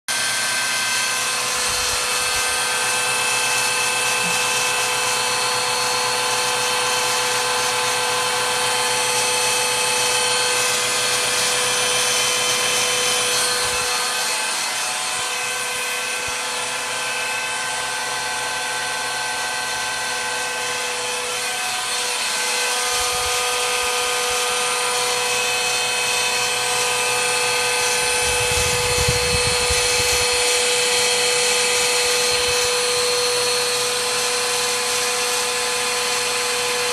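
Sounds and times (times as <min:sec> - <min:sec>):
electric drill whining: 0:00.1 - 0:36.9.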